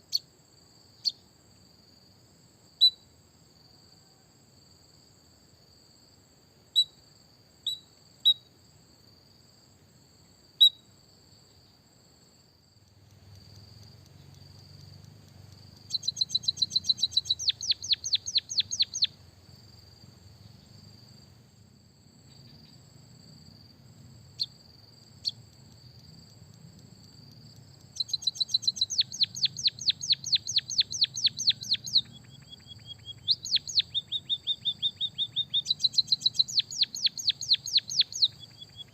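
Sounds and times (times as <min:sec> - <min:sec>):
bird chirps and trills: 0:14.1 - 0:19.1, 0:27.8 - 0:38.9.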